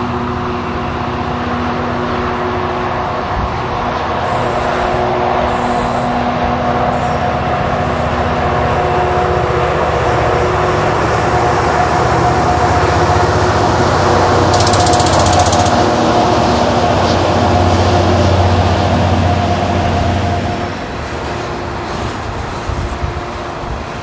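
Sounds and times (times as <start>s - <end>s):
locomotive whine: 0.0s - 24.0s
rapid high clicking: 14.5s - 15.9s.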